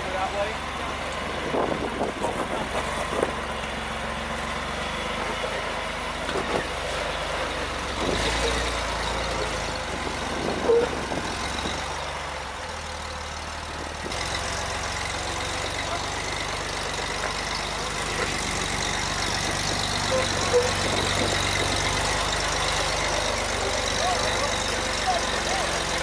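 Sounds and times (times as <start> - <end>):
vehicle engine running: 0.0 - 26.0
brief high squeaks: 20.1 - 21.4.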